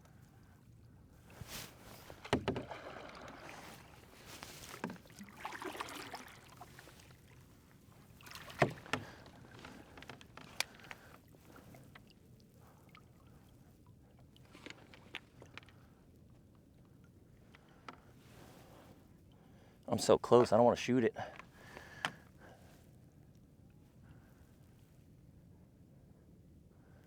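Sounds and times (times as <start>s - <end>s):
water splashing and sloshing: 1.2s - 15.9s
boat knocks: 1.8s - 6.1s, 8.3s - 10.6s.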